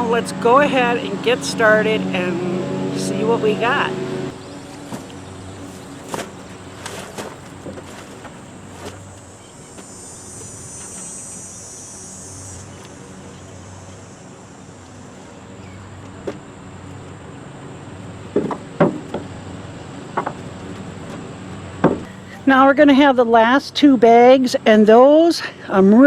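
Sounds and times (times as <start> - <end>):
low steady hum: 0.0 - 26.0
high-pitched insect buzzing: 9.4 - 15.4
sharp knocks: 21.8 - 22.1.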